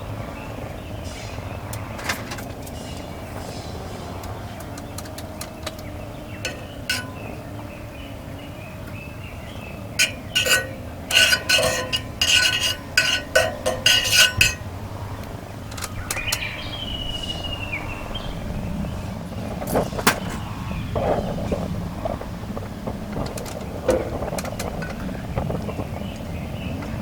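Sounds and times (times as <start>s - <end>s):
metal cookware clinking: 6.4s - 7.4s, 9.9s - 14.8s.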